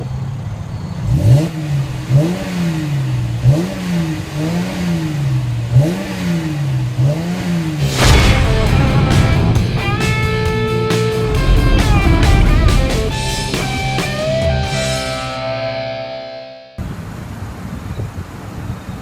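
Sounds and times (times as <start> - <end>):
car engine revving: 1.0 - 15.7
loud burst: 7.8 - 15.4.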